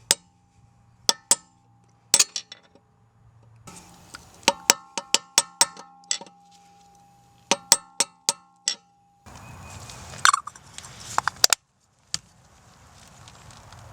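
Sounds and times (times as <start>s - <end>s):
sharp metallic clinks: 1.1s - 2.8s, 3.7s - 9.4s
steady hiss: 3.7s - 4.6s
scattered clicks and knocks: 3.7s - 6.6s, 7.5s - 8.9s.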